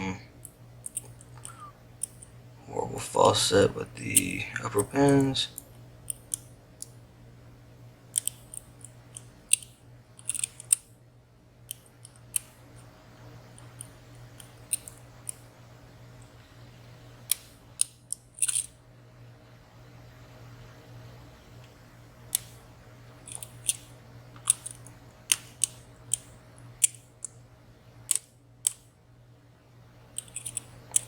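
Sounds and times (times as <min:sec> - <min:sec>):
faint low hum: 0:00.0 - 0:31.0
lock pick clicking in padlock: 0:08.1 - 0:10.8, 0:17.3 - 0:18.7, 0:24.4 - 0:27.0, 0:30.2 - 0:31.0.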